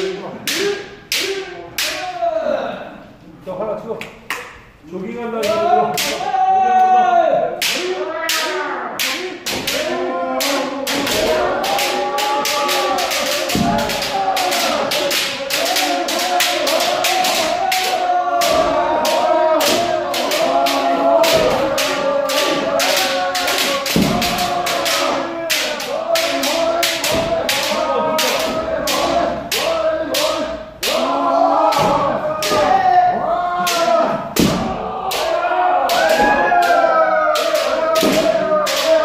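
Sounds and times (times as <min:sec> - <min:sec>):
people shouting: 0:00.0 - 0:02.9, 0:05.4 - 0:39.0
bamboo swords striking armour: 0:23.9 - 0:24.4, 0:33.7 - 0:35.3.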